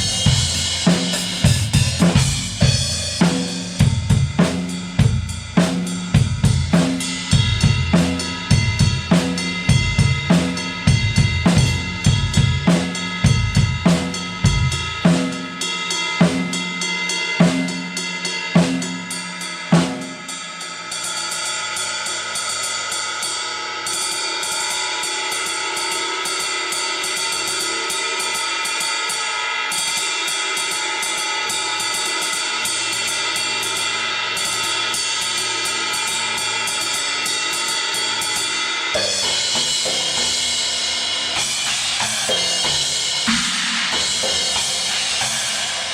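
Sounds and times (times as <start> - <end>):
drum hits: 0.0 - 15.5, 41.2 - 45.9
cymbal wash: 0.0 - 45.9.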